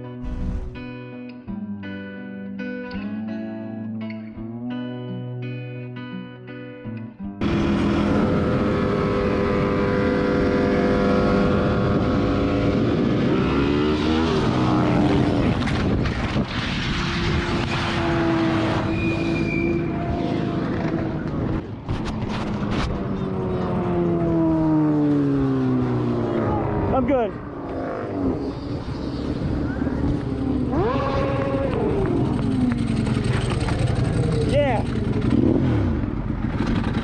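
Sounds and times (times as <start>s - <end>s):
wind rush: 0.2s - 0.9s, 14.1s - 19.2s
motorcycle engine running: 7.4s - 13.4s, 29.0s - 37.0s.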